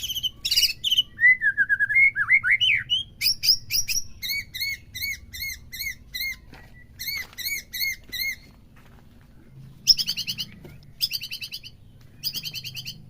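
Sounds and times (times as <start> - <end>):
bird squeaky calls: 0.0 - 8.6, 9.8 - 13.0.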